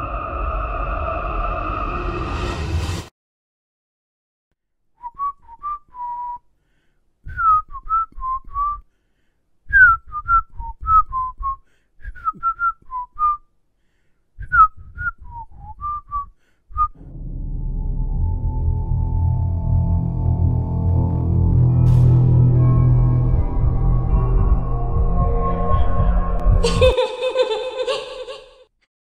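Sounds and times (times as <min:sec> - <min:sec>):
person whistling a tune: 0:05.0 - 0:06.5, 0:07.3 - 0:08.9, 0:09.7 - 0:13.4, 0:14.4 - 0:17.0.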